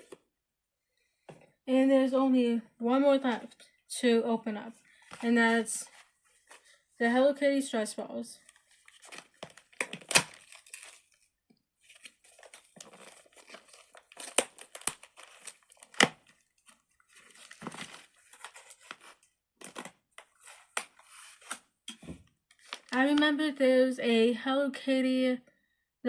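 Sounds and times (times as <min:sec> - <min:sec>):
packaging crinkling and tearing: 0:08.4 - 0:21.6, 0:22.5 - 0:23.1.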